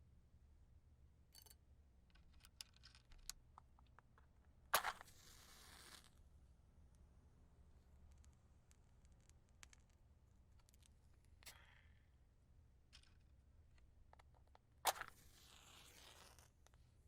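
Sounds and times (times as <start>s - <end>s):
match striking and flaring: 4.8s - 6.2s, 14.9s - 16.6s.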